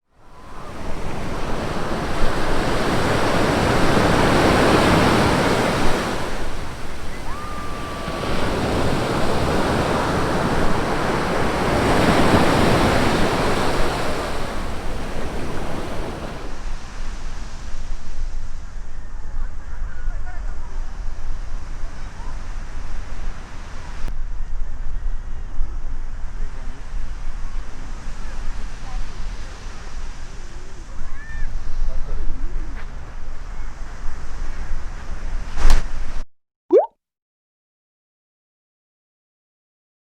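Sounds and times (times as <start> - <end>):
sea waves washing onto beach: 0.2 - 16.7
wind rumble on microphone: 0.3 - 36.2.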